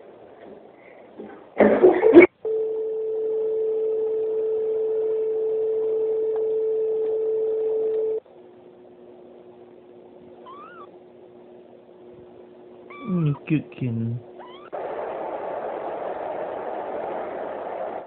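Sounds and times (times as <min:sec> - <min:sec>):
faint low hum: 0:00.0 - 0:18.0
loud noisy burst: 0:14.7 - 0:18.0.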